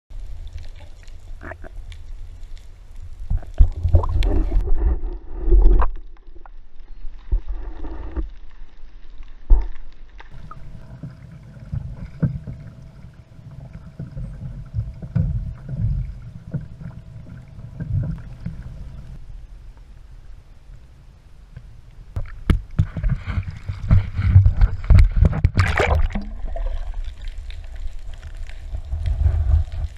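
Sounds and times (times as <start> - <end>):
water sloshing and splashing: 10.2 - 19.2, 22.2 - 29.9.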